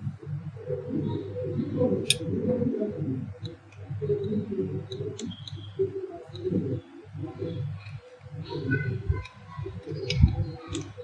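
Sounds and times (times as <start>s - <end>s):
birds cooing: 0.0s - 2.0s.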